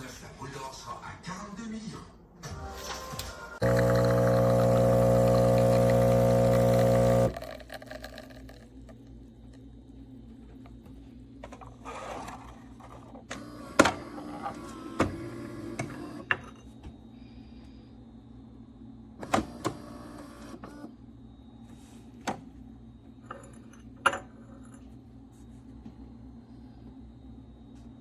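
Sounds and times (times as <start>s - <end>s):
espresso machine buzzing: 3.6s - 8.6s, 13.4s - 16.2s.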